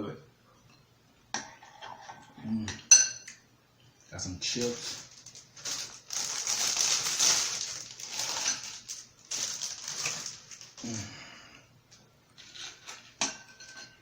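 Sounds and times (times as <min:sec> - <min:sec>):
crunching chips being chewed: 0:04.6 - 0:11.0.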